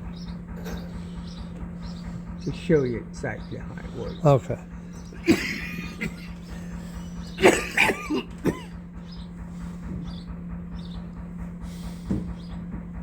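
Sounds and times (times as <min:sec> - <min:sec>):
low electrical hum: 0:00.0 - 0:13.0
person coughing: 0:05.2 - 0:06.5, 0:07.4 - 0:08.8.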